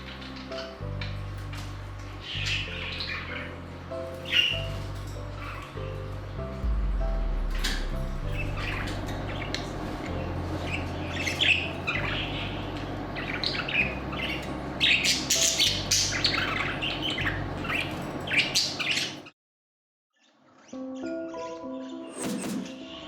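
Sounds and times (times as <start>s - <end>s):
budgies chirping and squawking: 1.6s - 6.1s, 9.3s - 19.3s.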